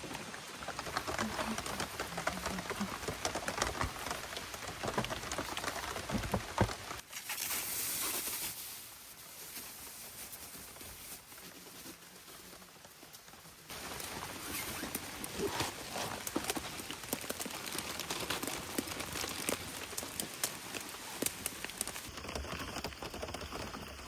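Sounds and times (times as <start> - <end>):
raindrops ticking and knocking: 0.0 - 7.0, 13.7 - 24.0
soft hiss of rain: 0.0 - 22.2.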